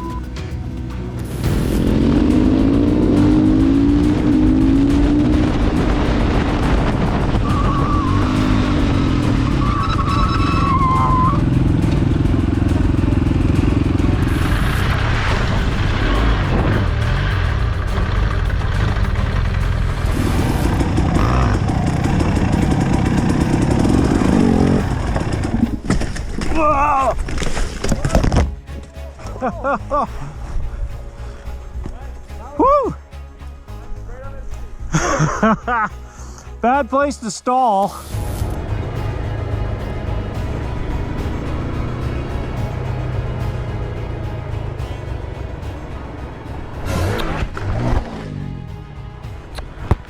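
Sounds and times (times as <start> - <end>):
motorcycle engine revving: 0.0 - 32.6, 38.1 - 50.0
wavering high whine: 1.1 - 26.5.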